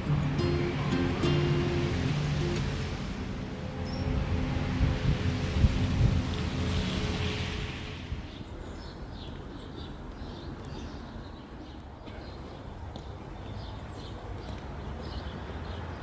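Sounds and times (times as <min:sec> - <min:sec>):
low steady rumble: 0:00.0 - 0:09.2
small birds chirping: 0:08.3 - 0:16.0.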